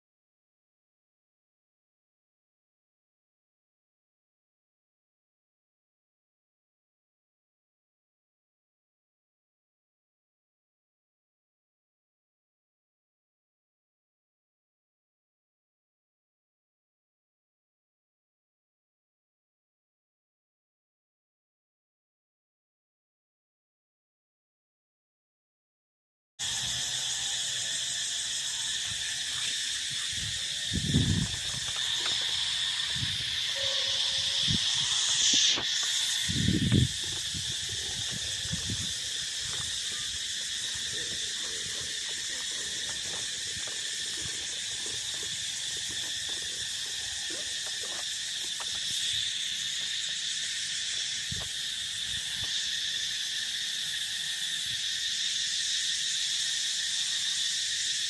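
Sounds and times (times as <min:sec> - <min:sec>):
insects chirring: 0:26.4 - 0:58.0.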